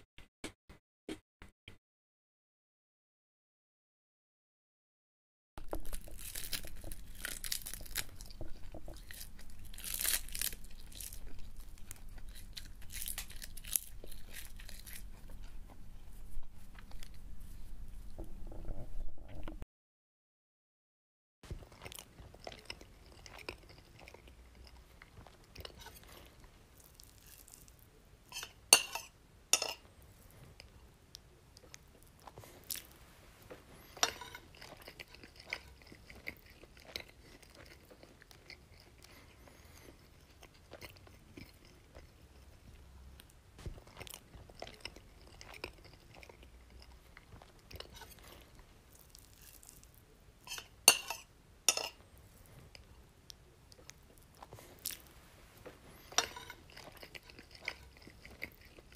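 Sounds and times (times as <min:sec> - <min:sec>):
person chewing crunchy food: 0:05.6 - 0:18.2, 0:21.5 - 0:58.9.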